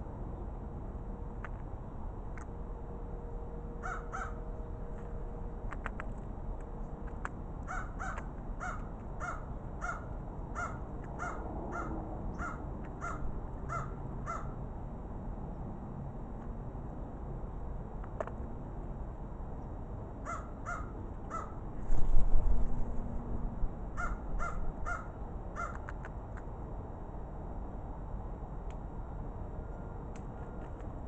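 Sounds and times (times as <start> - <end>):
crow cawing: 3.8 - 4.4, 7.7 - 14.6, 20.2 - 21.6, 24.0 - 25.8.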